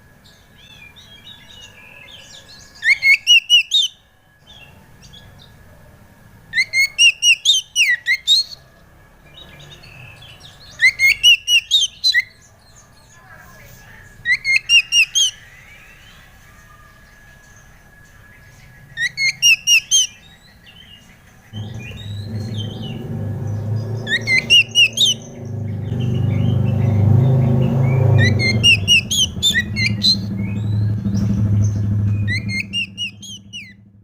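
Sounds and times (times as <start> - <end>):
bird song with whistled notes: 0.0 - 5.7, 6.5 - 34.0
faint bird chirps: 9.2 - 27.0, 28.0 - 33.8.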